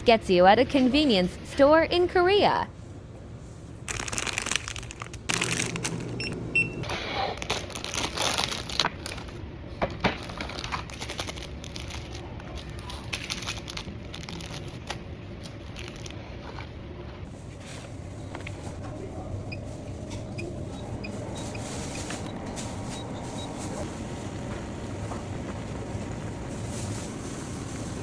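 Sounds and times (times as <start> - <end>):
low background hum: 0.0 - 28.0
plastic packaging crinkling: 3.8 - 6.2, 7.4 - 9.4, 10.2 - 16.7.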